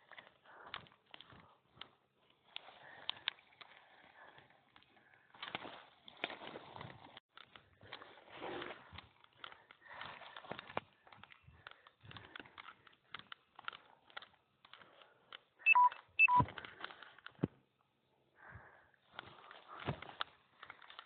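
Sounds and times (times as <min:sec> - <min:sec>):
rustling: 0:00.0 - 0:15.4
short electronic beeps: 0:15.7 - 0:16.5.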